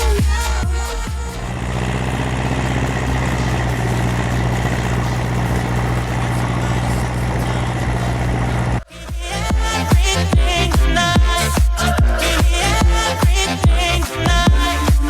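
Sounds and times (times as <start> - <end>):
tractor diesel engine running: 1.1 - 8.8.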